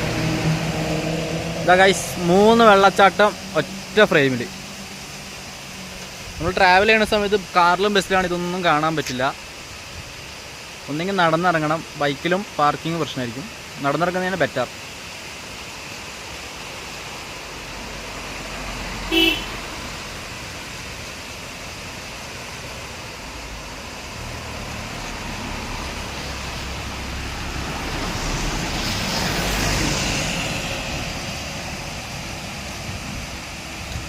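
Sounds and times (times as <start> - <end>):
vehicle passing by: 0.0 - 6.8, 17.2 - 34.0
vehicle horn toot: 19.1 - 19.6.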